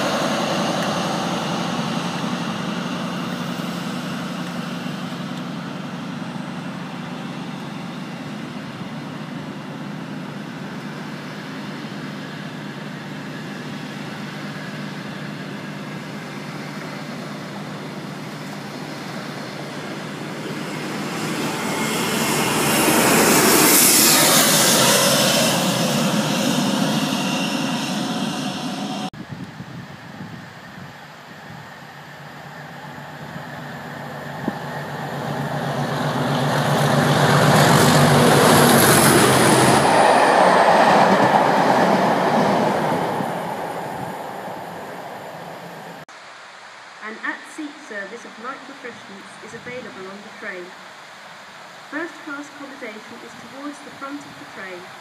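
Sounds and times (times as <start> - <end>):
diesel engine drone: 0.0 - 46.1, 47.0 - 55.0
train wheels on rail: 31.5 - 46.0.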